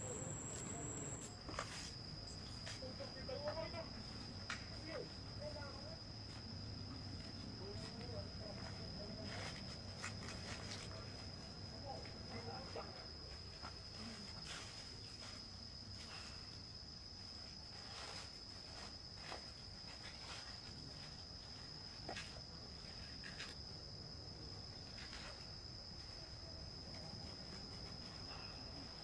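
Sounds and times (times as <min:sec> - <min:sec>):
high-pitched insect chirring: 0:00.0 - 0:01.3
faint rustles and clicks: 0:00.0 - 0:02.0.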